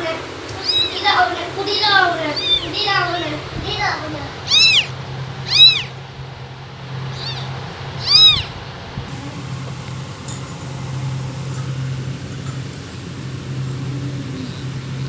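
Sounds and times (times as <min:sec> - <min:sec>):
steady low hum: 0:00.0 - 0:15.0
kitten meowing: 0:00.5 - 0:03.2, 0:03.8 - 0:06.0, 0:07.1 - 0:08.6.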